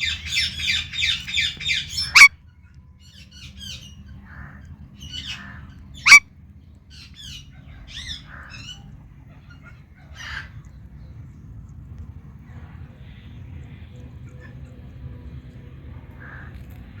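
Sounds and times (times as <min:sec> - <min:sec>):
parakeet squawking and chirping: 0:00.0 - 0:02.3, 0:05.0 - 0:06.2
low steady background hum: 0:00.0 - 0:17.0
parakeet sharp screech: 0:01.9 - 0:02.3, 0:06.0 - 0:06.2.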